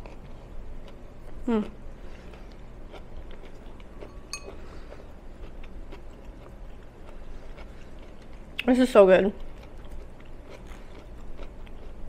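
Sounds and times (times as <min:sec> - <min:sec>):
person chewing: 0:00.0 - 0:08.7, 0:09.4 - 0:12.0
glass clink: 0:04.1 - 0:04.6.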